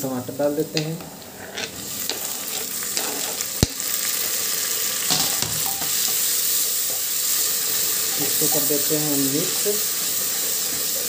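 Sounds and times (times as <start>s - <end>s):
tomatoes sizzling in hot oil: 0.0s - 11.0s
wooden spoon stirring: 1.0s - 3.6s.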